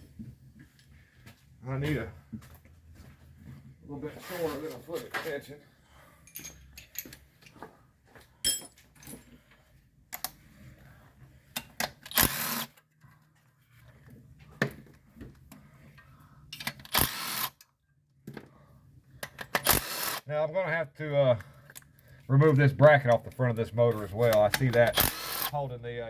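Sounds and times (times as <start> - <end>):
metal on metal clink: 6.2 - 7.6, 8.4 - 9.3, 16.5 - 17.0
metal tool clicks and knocks: 8.4 - 9.2, 16.6 - 17.0.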